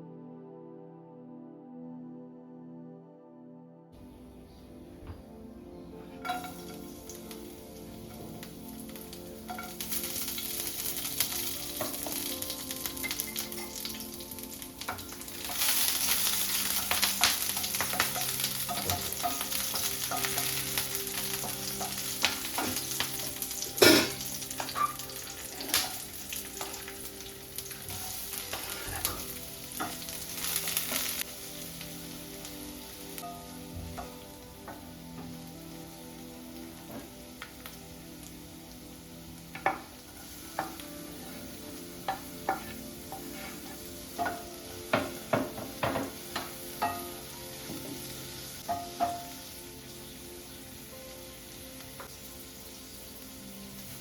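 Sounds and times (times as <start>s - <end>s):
food sizzling in a pan: 5.9s - 54.0s
spoon scraping against pan: 42.1s - 44.0s.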